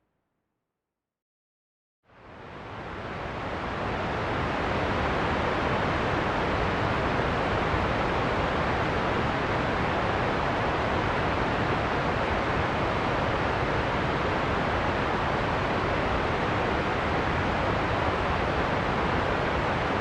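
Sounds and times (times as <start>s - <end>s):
wind: 2.1s - 20.0s.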